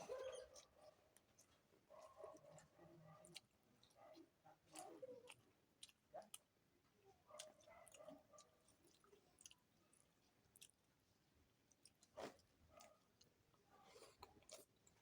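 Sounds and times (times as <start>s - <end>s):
person chewing food: 0.6s - 1.9s, 4.8s - 6.6s, 7.4s - 11.0s, 11.6s - 15.0s.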